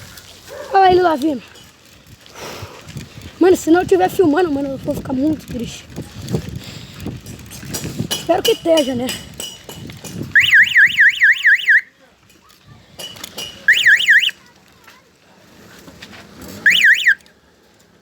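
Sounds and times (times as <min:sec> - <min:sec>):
electronic bicycle horn warbling: 0:10.3 - 0:11.9, 0:13.7 - 0:14.3.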